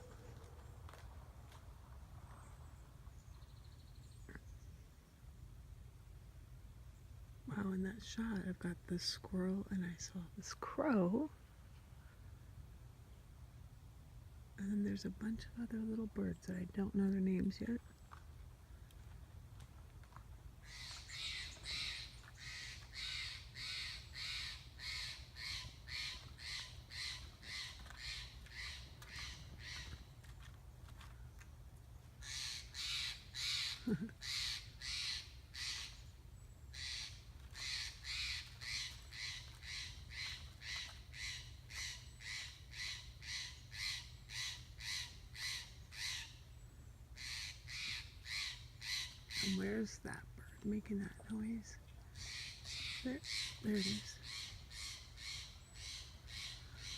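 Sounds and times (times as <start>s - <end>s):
bird calling harshly: 20.6s - 30.1s, 32.2s - 36.1s, 36.7s - 46.4s, 47.2s - 49.8s, 52.1s - 56.9s.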